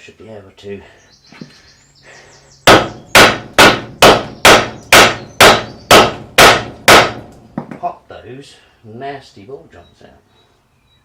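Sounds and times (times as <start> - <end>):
hammer striking metal: 2.7 - 7.4.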